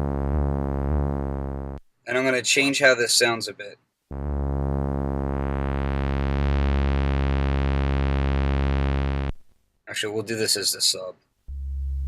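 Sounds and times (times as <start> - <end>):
synthesizer low bass note: 0.0 - 1.8, 4.1 - 9.4, 11.5 - 12.0.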